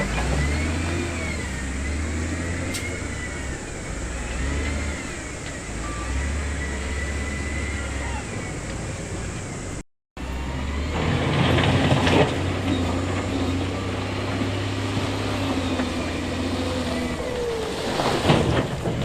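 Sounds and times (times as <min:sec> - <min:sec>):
heavy diesel machinery running: 0:00.0 - 0:19.0.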